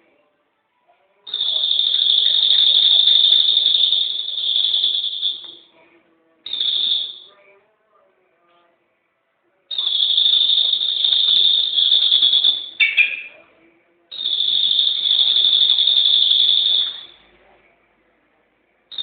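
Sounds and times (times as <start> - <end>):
bird chirp: 9.7 - 13.5
songbird buzzing trill: 11.2 - 13.3.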